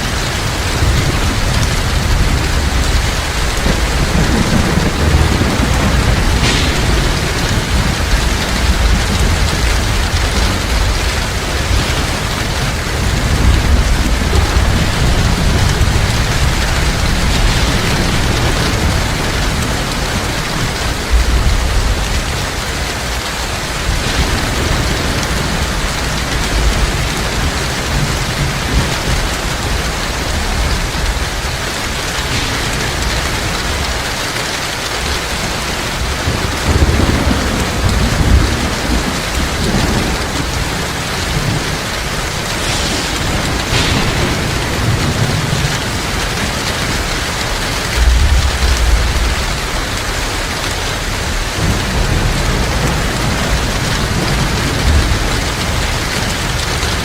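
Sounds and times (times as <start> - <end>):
heavy rain hissing: 0.0 - 57.0
thunder rumbling: 0.0 - 57.0.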